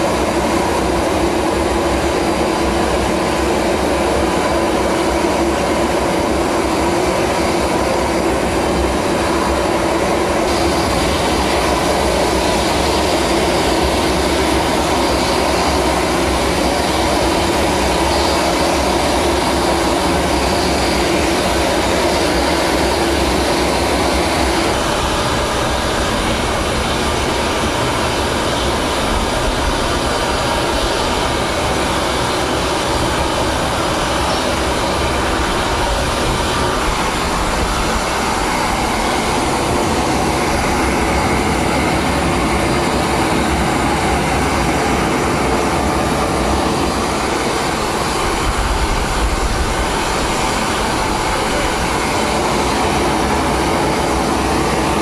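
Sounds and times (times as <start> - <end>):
aircraft engine noise: 0.0 - 55.0.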